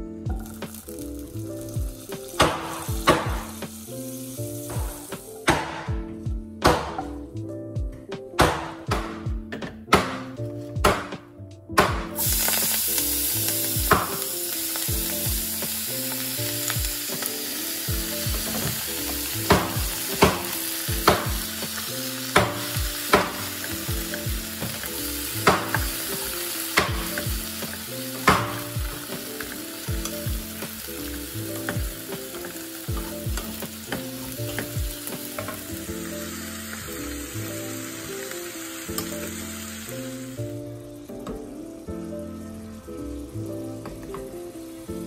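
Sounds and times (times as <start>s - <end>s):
greens sizzling in hot oil: 0.3s - 5.5s, 12.2s - 45.0s
spatula knocking and scraping pan: 2.4s - 3.6s, 17.9s - 21.8s, 22.4s - 30.8s.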